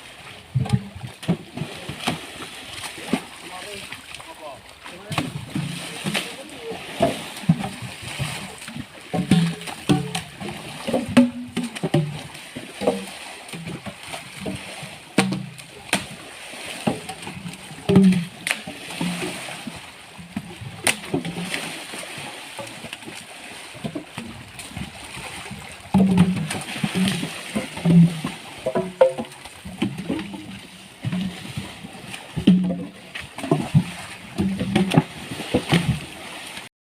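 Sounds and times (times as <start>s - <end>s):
water splashing and sloshing: 0.0s - 36.7s
logs knocking: 9.1s - 14.6s, 15.2s - 16.1s, 16.8s - 19.4s, 25.9s - 31.4s, 32.4s - 36.0s.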